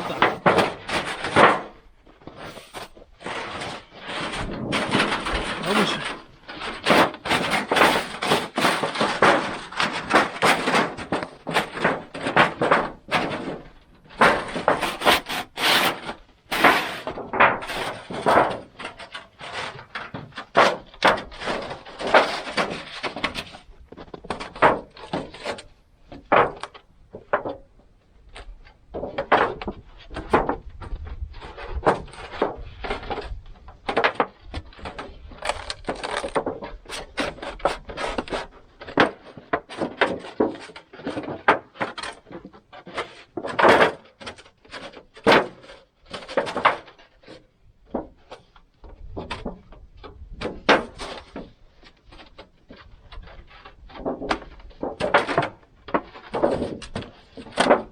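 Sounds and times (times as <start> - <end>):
metal scraping: 0.0 - 1.7, 2.3 - 10.8, 14.2 - 18.2.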